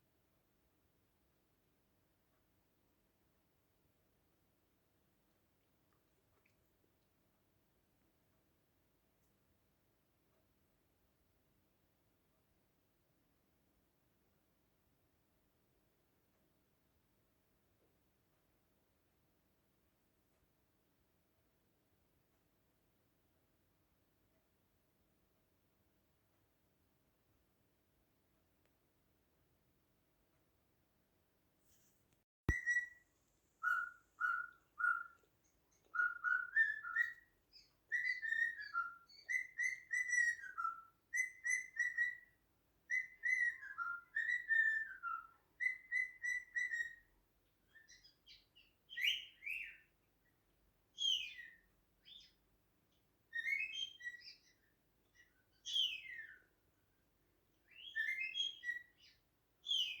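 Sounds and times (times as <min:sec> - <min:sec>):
cockatiel sharp calls: 0:32.5 - 0:33.0, 0:33.6 - 0:35.2
cockatiel whistling: 0:32.5 - 0:33.0, 0:33.6 - 0:35.2, 0:35.9 - 0:47.0, 0:53.3 - 0:54.5, 0:57.7 - 0:59.1.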